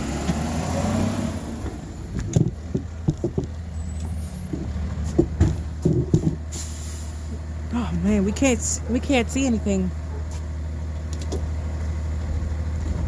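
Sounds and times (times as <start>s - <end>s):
garbage truck engine running: 0.0s - 13.0s
knocks and clunks: 1.6s - 6.5s.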